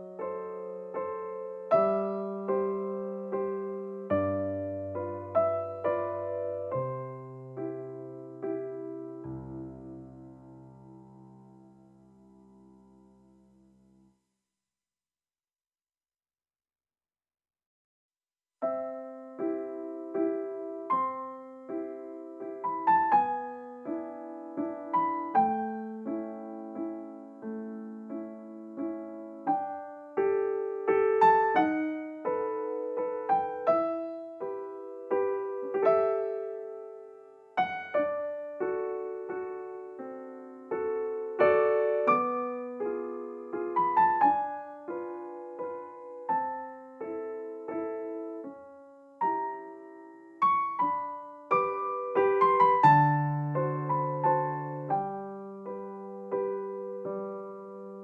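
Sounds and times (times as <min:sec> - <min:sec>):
slow piano music: 0:00.0 - 0:14.2, 0:18.6 - 0:58.0.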